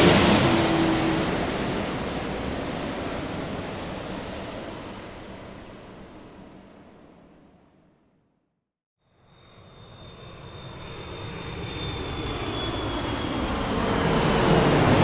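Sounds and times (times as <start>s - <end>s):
jet airliner cabin noise: 0.0s - 5.2s.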